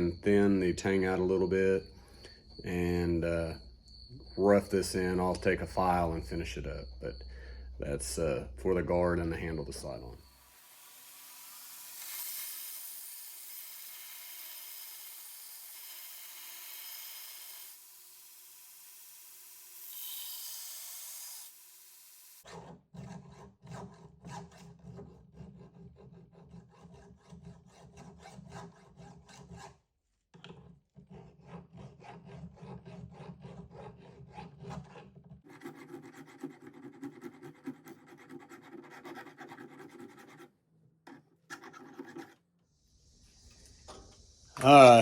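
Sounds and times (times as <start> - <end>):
hand file on steel: 22.4 - 29.8, 30.9 - 40.5.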